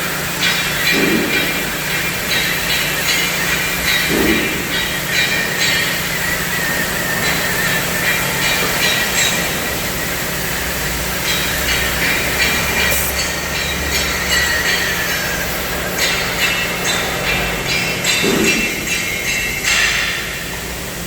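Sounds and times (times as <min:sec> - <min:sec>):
high-pitched whine: 0:01.7 - 0:17.8
cutting machine hissing: 0:06.1 - 0:16.0.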